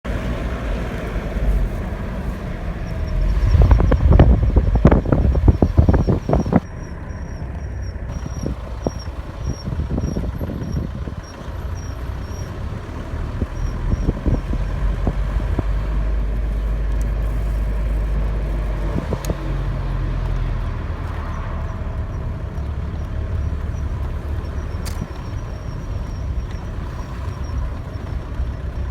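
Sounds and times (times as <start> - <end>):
low rumble of car: 0.0 - 28.9
wheel scratching chirp: 1.3 - 12.7, 13.4 - 15.7, 21.0 - 28.9.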